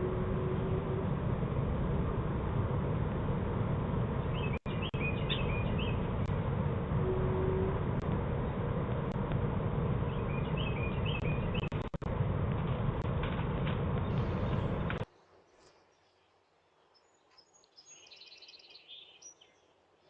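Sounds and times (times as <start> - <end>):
steady outdoor hiss: 0.0 - 20.0
small bird chirping: 4.3 - 6.0, 10.1 - 11.8.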